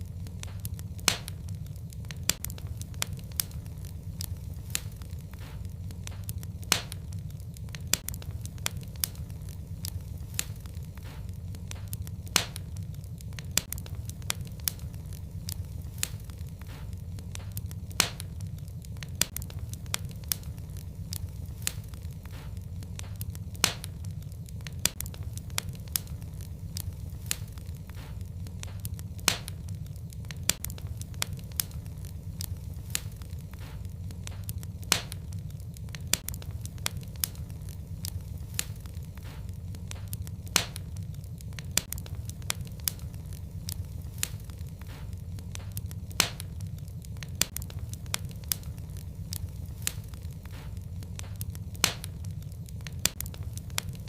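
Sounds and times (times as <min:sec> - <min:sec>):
fire crackling: 0:00.0 - 0:54.0
fire rumbling: 0:00.0 - 0:54.0
sharp pops of burning wood: 0:00.0 - 0:54.0.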